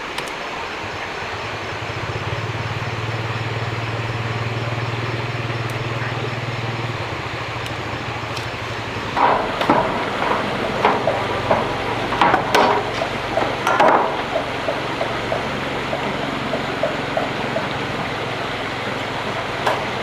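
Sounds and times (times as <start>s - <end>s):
low mechanical hum: 0.0s - 20.0s
steady hiss: 0.0s - 20.0s
sharp knocks: 9.1s - 20.0s.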